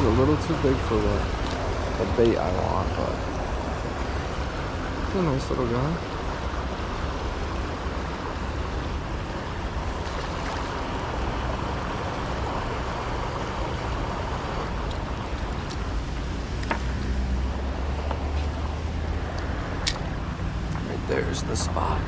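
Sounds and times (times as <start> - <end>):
flowing river water: 0.0 - 22.0
wind on microphone: 6.1 - 21.8.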